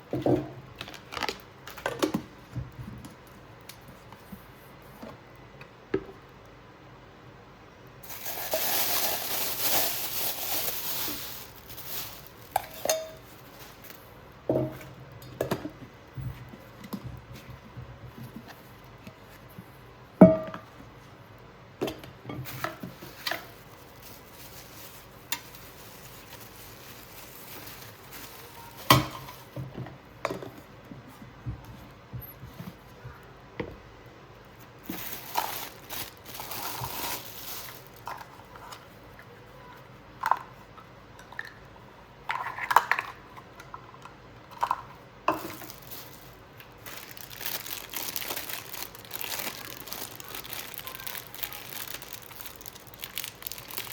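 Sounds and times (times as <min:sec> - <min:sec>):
packaging rustling: 0:00.8 - 0:02.1, 0:08.0 - 0:14.2, 0:22.5 - 0:29.6, 0:34.7 - 0:38.4, 0:45.4 - 0:53.9
metal bowls clanking: 0:12.6 - 0:13.3.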